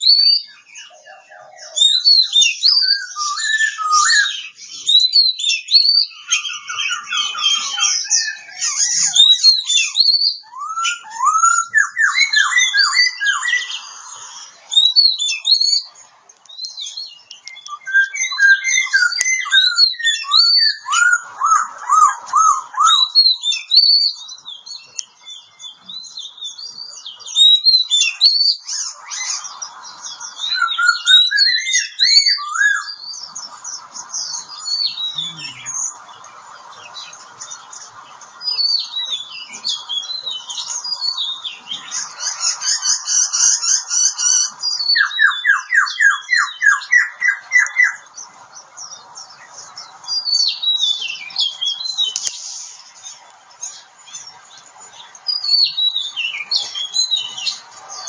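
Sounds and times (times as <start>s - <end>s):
bird singing varied whistles: 0.0s - 13.8s, 16.5s - 29.5s, 30.4s - 33.2s, 34.3s - 36.0s, 38.5s - 48.0s.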